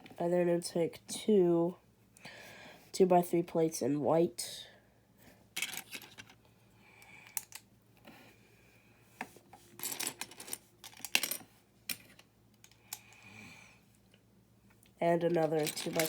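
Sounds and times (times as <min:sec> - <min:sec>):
plastic bricks clicking and rattling: 0:15.3 - 0:16.0.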